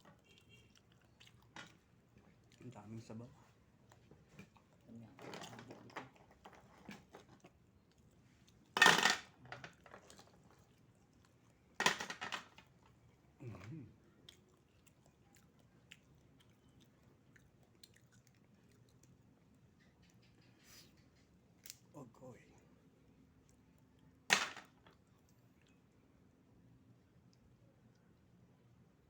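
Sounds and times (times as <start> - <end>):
chewing: 0.0 - 8.8, 9.6 - 11.8, 12.6 - 21.8.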